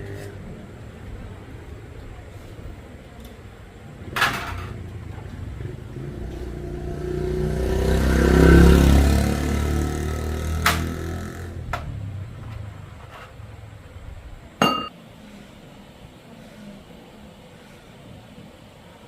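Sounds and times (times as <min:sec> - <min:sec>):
motor vehicle engine: 0:00.0 - 0:14.9
sharp clank: 0:14.6 - 0:14.9.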